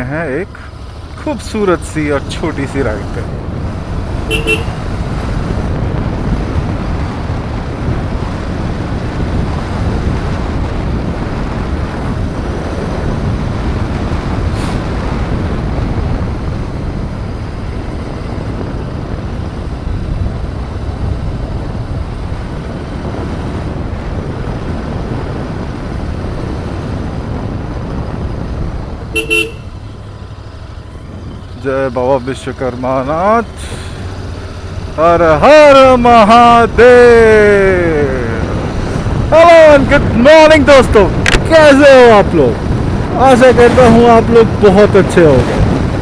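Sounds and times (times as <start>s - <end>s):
motorcycle engine: 0.0s - 46.0s
wind rush: 1.0s - 32.1s, 33.1s - 46.0s
vehicle horn toot: 4.2s - 5.0s, 29.1s - 29.9s.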